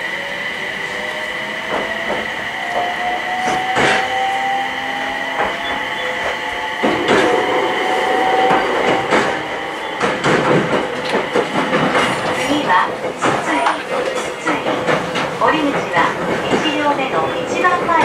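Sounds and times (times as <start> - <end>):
high train whine: 0.0 - 18.0
train running noise: 0.0 - 18.0
wheels clacking over rail joints: 8.2 - 18.0.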